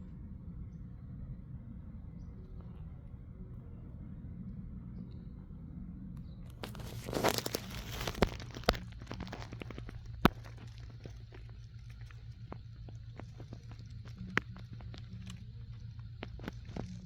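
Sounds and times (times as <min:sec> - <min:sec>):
low hum: 0:00.0 - 0:17.0
crinkling handling noise: 0:06.4 - 0:17.0.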